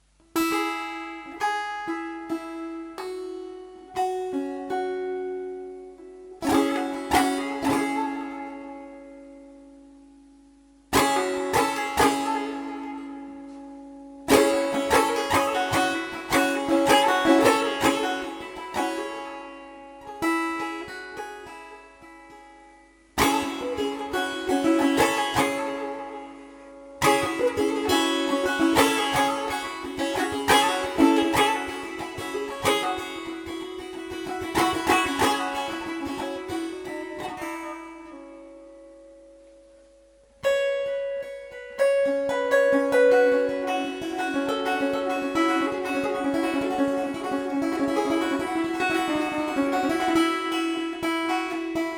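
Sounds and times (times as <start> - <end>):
quick plucked notes: 0.0 - 10.0, 10.9 - 39.0, 40.4 - 51.9
plucked lute strumming: 0.0 - 51.9.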